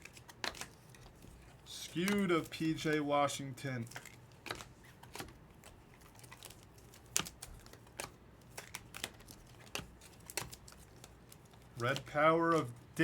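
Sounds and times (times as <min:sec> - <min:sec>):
trading cards flipping and clicking: 0:00.0 - 0:13.0.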